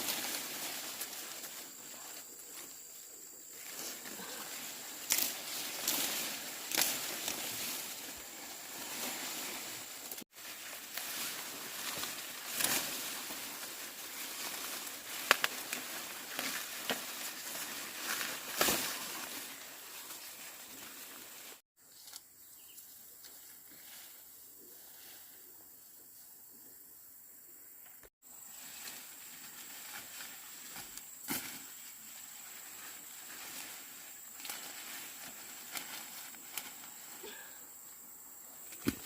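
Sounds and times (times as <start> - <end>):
rustling with snaps and crackles: 3.6 - 22.2, 32.4 - 37.2.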